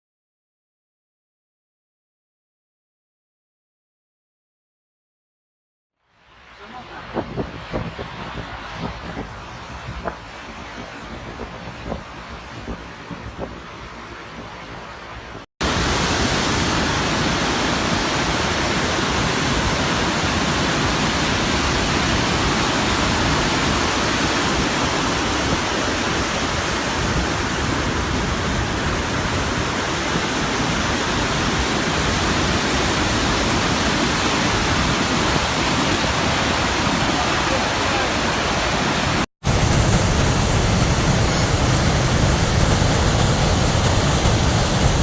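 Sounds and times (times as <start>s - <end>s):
waterfall pouring: 15.6s - 45.0s.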